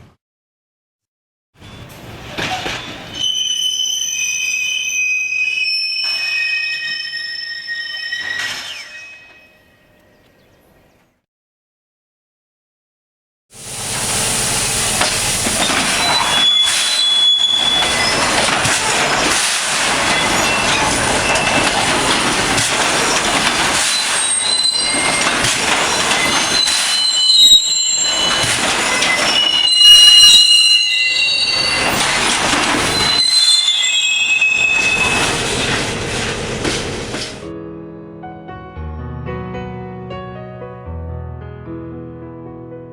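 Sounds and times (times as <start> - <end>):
high-pitched brake squeals: 1.6 - 10.2, 14.2 - 37.4
rail retarder grinding rush: 13.6 - 37.5.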